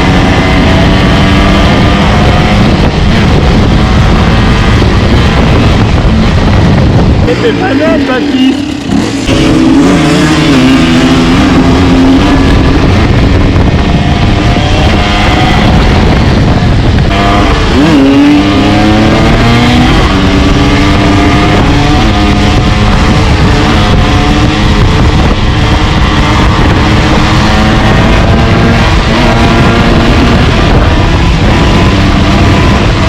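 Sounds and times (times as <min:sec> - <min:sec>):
dirt bike engine running: 0:00.0 - 0:33.0.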